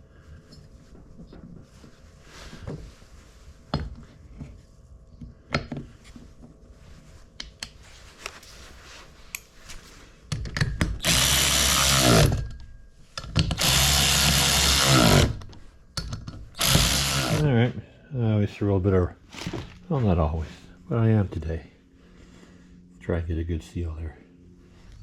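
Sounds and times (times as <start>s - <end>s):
tools clicking and knocking: 10.3s - 11.1s, 12.2s - 13.8s, 15.4s - 17.2s
electric power tool whirring: 11.0s - 12.4s, 13.4s - 15.5s, 16.6s - 17.5s.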